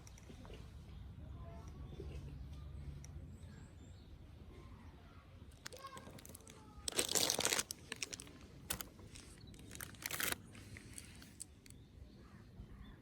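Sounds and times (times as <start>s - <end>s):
crinkling rustling handling noise: 5.5s - 11.7s
small clicks: 5.6s - 11.8s.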